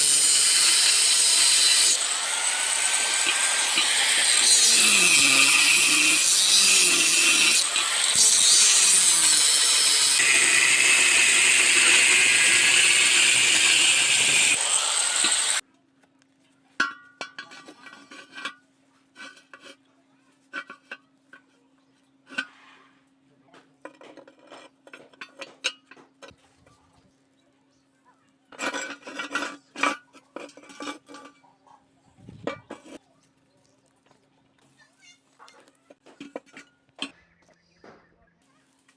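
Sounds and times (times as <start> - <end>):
power tool cutting: 0.0 - 15.6.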